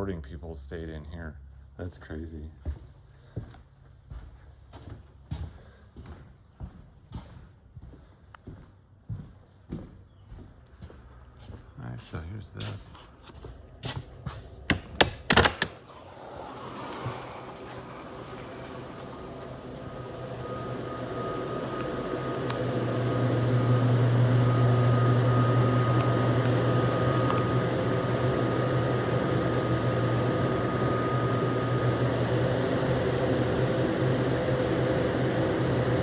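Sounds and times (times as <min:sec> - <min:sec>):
machinery humming: 0:10.7 - 0:36.0.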